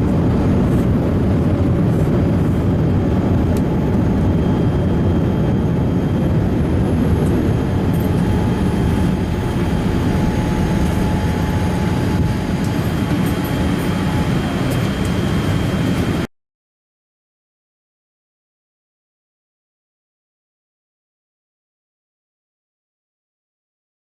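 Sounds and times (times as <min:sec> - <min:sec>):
faint steady whine: 0:00.0 - 0:16.3
jet engine cabin roar: 0:00.0 - 0:16.3.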